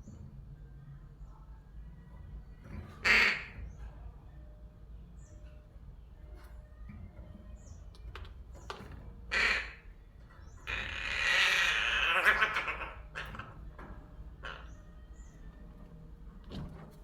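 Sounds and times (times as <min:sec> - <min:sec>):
crow harsh raspy call: 0:03.0 - 0:03.7, 0:09.3 - 0:15.3
crow squawk: 0:03.0 - 0:03.7, 0:09.3 - 0:15.3.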